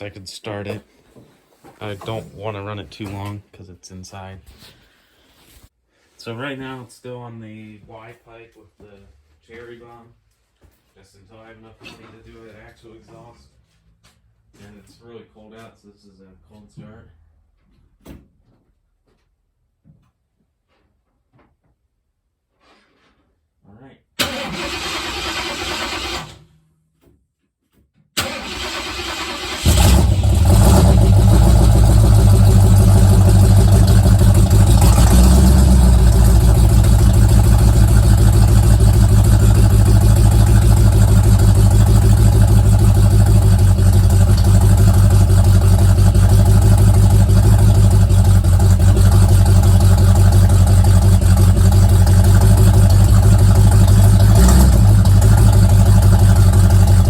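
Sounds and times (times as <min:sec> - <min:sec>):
starter cranking: 0:28.2 - 0:57.0
car engine idling and revving: 0:29.0 - 0:57.0.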